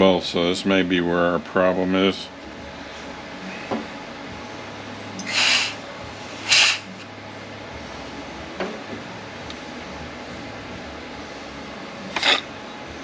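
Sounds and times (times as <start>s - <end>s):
compressed air blasts: 5.2s - 7.0s.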